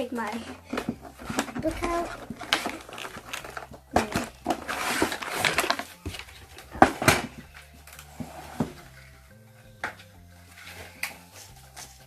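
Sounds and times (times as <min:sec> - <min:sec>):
packaging rustling: 0:00.2 - 0:08.7.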